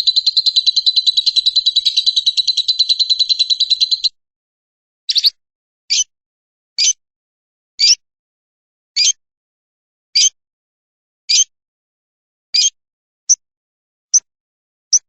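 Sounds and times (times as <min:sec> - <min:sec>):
lovebird chirping: 0:00.0 - 0:04.1, 0:05.1 - 0:05.3.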